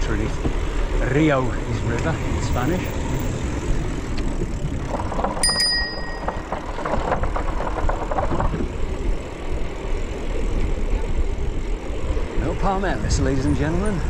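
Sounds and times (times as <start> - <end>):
bike tyres crackling on loose ground: 0.0 - 14.0
wind rumble on microphone: 0.0 - 14.0
high metallic ring: 5.4 - 6.4.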